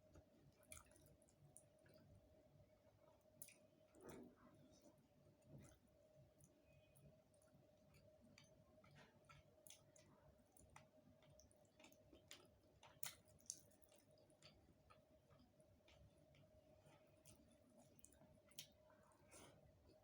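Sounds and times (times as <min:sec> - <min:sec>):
soft eating clicks: 0:00.1 - 0:02.1, 0:02.8 - 0:20.0
wet chewing: 0:05.5 - 0:20.0.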